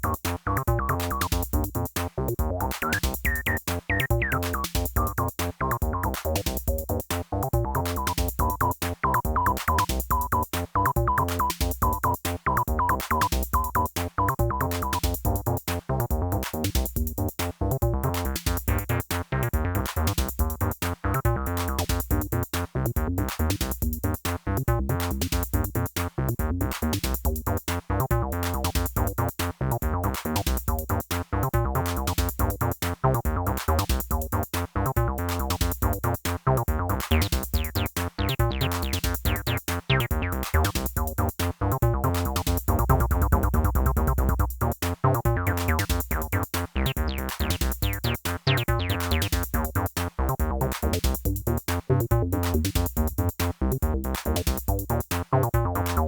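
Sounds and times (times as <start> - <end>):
drum machine beat: 0.0 - 56.0
squelchy acid synth bass: 0.0 - 56.0.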